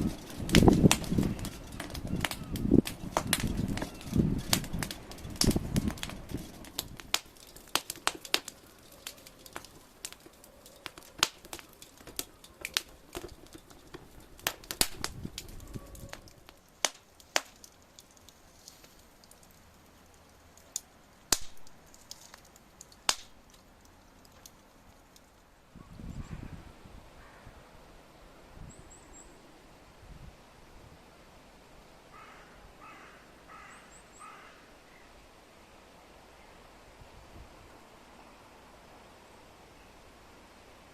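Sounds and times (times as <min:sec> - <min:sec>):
bonfire crackling and popping: 0:00.0 - 0:25.6.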